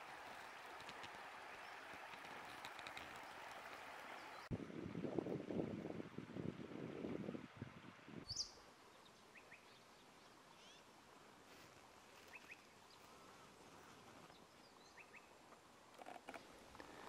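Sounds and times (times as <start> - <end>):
faint high bird chirps: 8.2 - 8.6.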